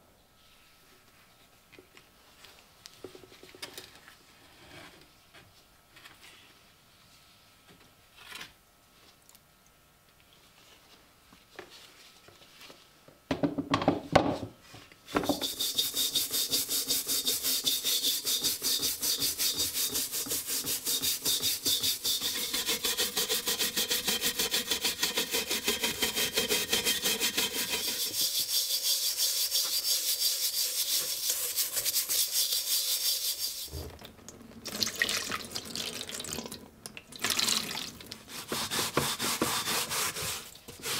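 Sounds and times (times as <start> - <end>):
brush scrubbing rusty steel: 15.3 - 33.7, 38.3 - 40.9.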